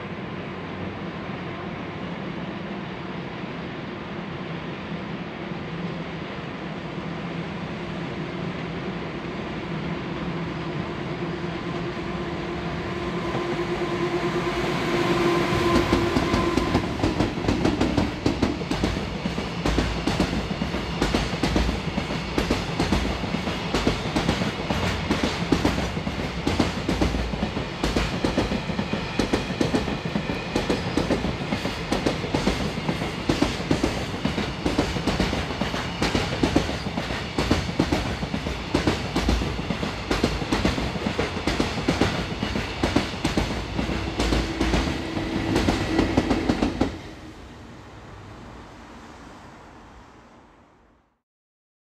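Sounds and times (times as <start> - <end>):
electric locomotive hum: 0.0 - 50.8
train wheels clacking over rail joints: 15.7 - 47.0.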